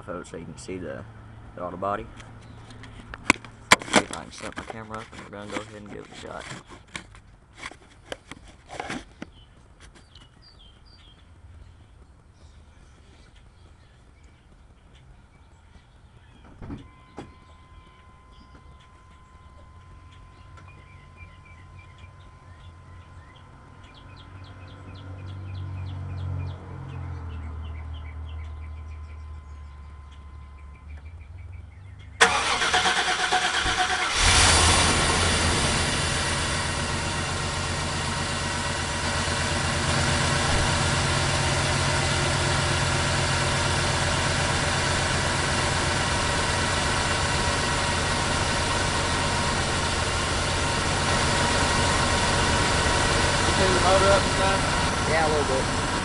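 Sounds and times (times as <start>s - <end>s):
faint birds chirping: 0.1s - 3.7s, 4.8s - 33.3s
engine fast idle: 32.2s - 56.0s.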